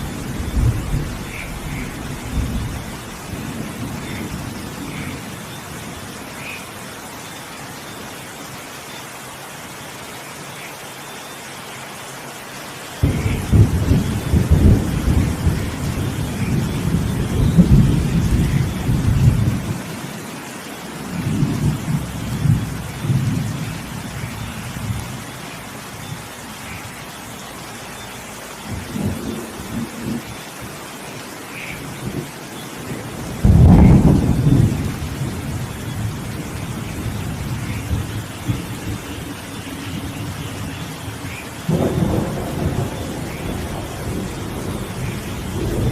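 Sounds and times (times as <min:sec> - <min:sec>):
thunder rumbling and cracking: 0:00.0 - 0:06.2, 0:13.0 - 0:19.9, 0:21.1 - 0:25.2, 0:31.9 - 0:45.9
steady rain: 0:00.0 - 0:45.9.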